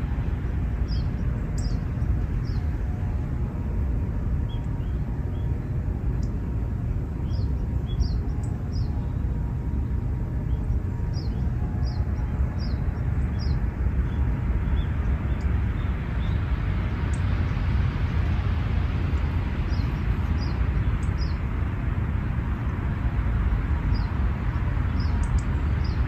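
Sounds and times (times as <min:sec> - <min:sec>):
low outdoor rumble: 0:00.0 - 0:26.0
small birds chirping: 0:00.8 - 0:02.7, 0:07.2 - 0:09.0, 0:19.6 - 0:21.4, 0:23.9 - 0:26.0.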